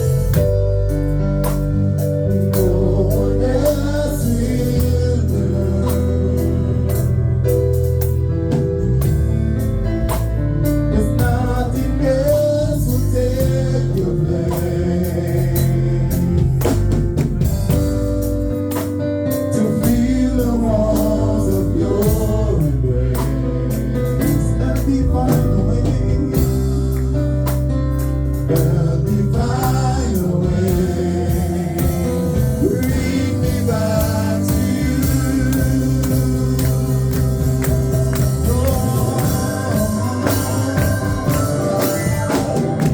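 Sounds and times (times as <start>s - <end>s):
bass: 0.0s - 42.9s
drums: 0.0s - 42.9s
organ or keyboard: 0.0s - 42.9s
choir singing: 2.6s - 6.1s, 28.5s - 42.9s.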